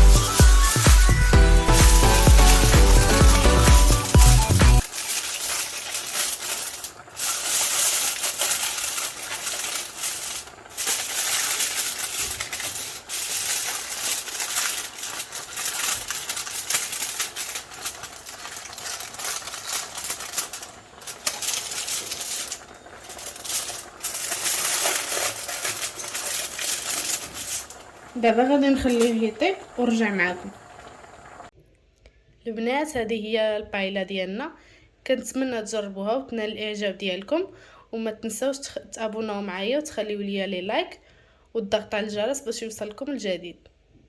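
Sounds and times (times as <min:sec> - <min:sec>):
paper and foil crinkling: 0:00.0 - 0:31.5.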